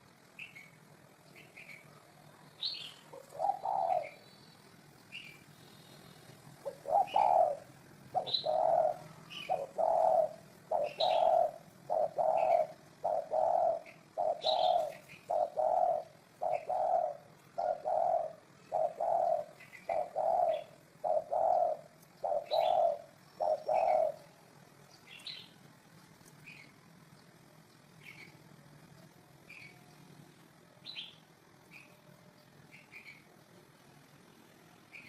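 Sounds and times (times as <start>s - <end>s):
dove cooing: 0.0s - 4.3s, 5.1s - 25.4s
small birds chirping: 0.0s - 35.0s.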